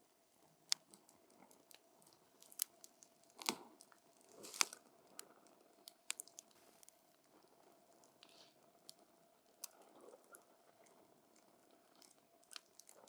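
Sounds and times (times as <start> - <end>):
campfire crackling and popping: 4.3 - 7.0.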